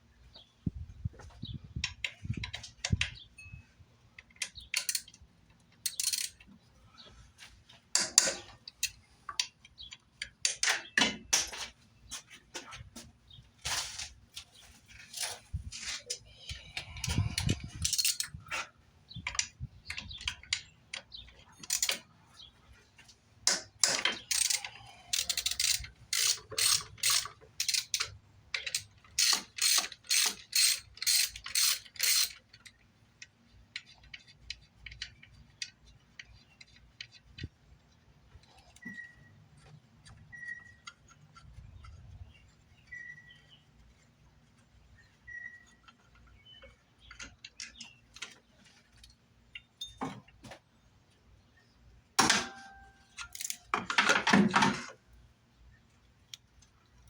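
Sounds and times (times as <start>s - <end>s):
ratchet wrench clicking: 4.4s - 5.2s, 5.8s - 6.4s, 17.0s - 18.3s, 21.6s - 22.0s, 24.2s - 32.4s
light ticking of tools: 16.1s - 22.1s, 23.0s - 42.0s.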